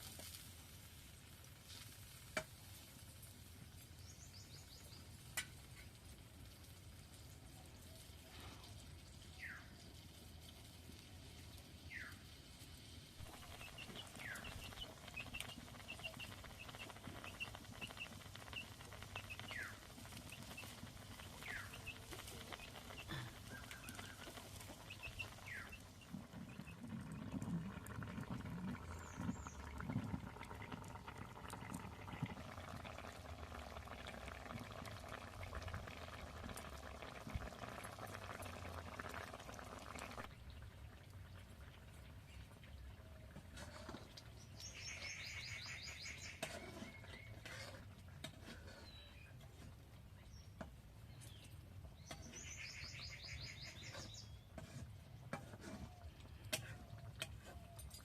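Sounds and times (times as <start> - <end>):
bird chirping: 13.3 - 26.8, 44.4 - 47.4, 50.2 - 54.5.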